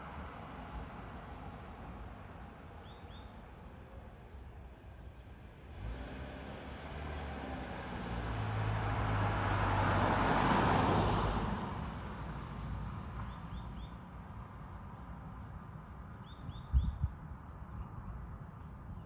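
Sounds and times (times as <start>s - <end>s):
vehicle passing by: 5.7s - 13.1s.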